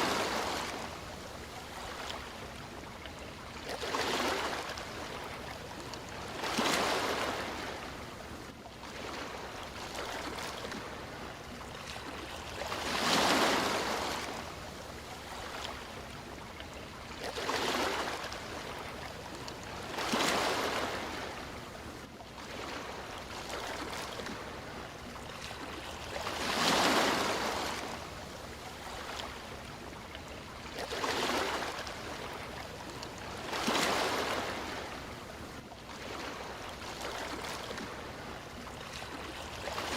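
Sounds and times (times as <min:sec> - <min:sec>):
constant low wash: 0:00.0 - 0:39.9.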